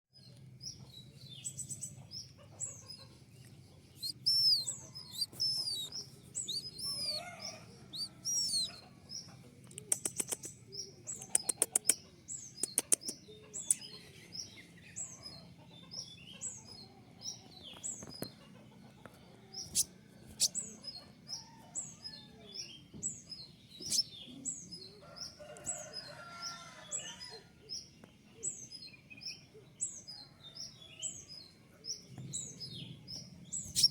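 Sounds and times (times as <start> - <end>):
sharp ticking bird notes: 3.5 - 14.0, 19.6 - 20.8, 23.7 - 24.2, 33.2 - 33.9
high thin bird chirps: 3.9 - 8.9, 9.7 - 14.0, 19.6 - 20.9, 23.7 - 24.4, 33.6 - 33.9.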